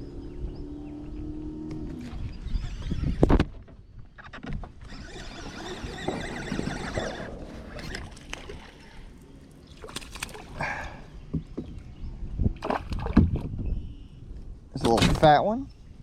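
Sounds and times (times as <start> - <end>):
splashing water: 9.7 - 10.9.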